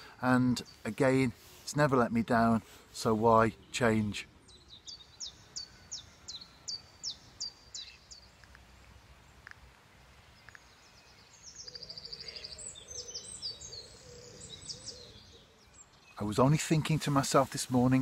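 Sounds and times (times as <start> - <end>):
small bird chirping: 3.6 - 16.8.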